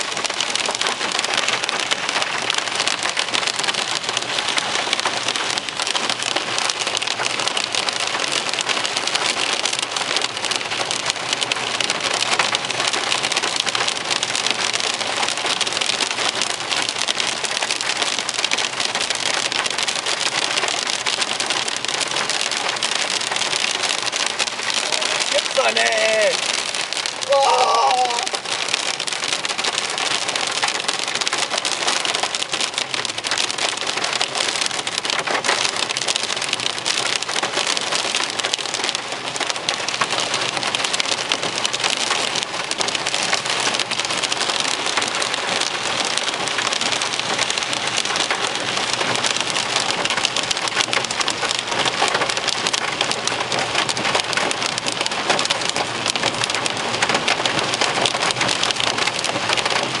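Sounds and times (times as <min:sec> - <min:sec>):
heavy rain on car roof: 0:00.0 - 1:00.0.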